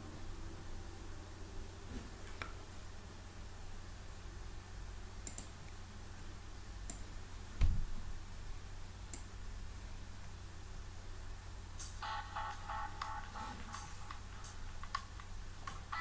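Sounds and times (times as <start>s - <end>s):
low steady hum: 0.0s - 16.0s
sharp computer clicks: 5.2s - 5.6s.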